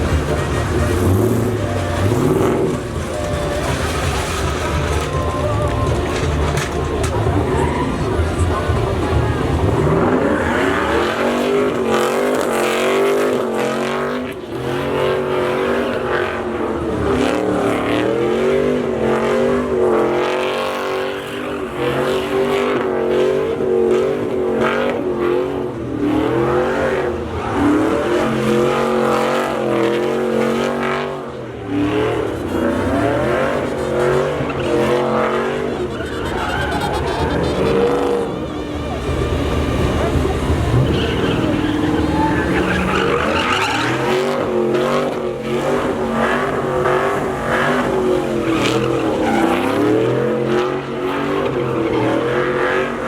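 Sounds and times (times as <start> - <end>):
tyres screeching on pavement: 0.0 - 22.7, 26.5 - 53.0
truck engine revving: 0.0 - 53.0.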